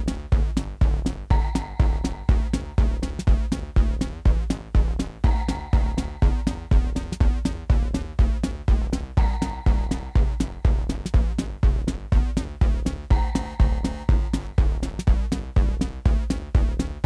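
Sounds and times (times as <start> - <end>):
synth bass line: 0.0 - 17.0
techno kick drum: 0.0 - 17.0
high synth tone: 1.3 - 3.0, 5.2 - 7.0, 9.2 - 10.9, 13.1 - 14.9.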